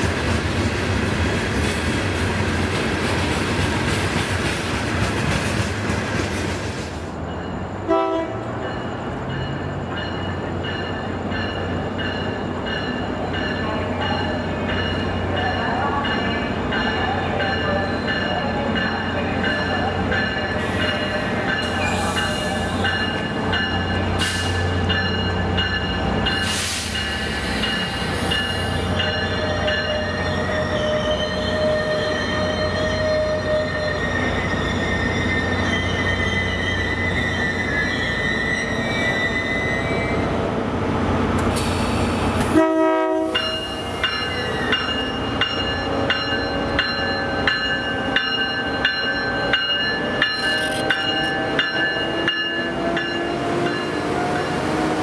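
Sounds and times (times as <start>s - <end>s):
wheels or brakes squealing: 26.3s - 40.3s.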